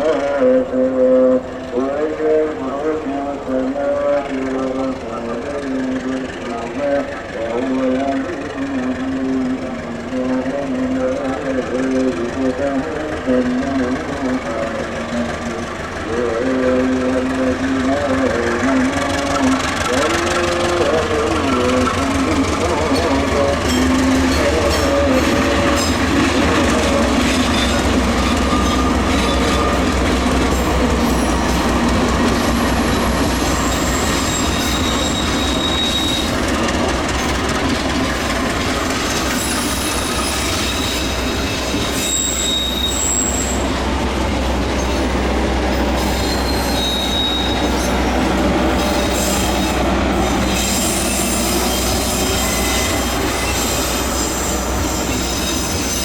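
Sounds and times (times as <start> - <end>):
train wheels rumbling on rails: 0.0 - 56.0
high-pitched wheel squeals: 22.9 - 36.6, 38.8 - 43.8, 44.8 - 56.0.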